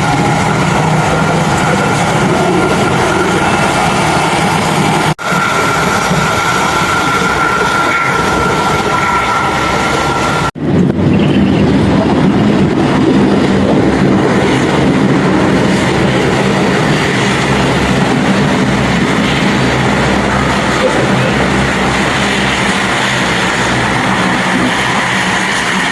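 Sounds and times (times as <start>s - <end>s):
aircraft engines roaring: 0.0s - 25.9s
high engine whine: 0.0s - 25.9s.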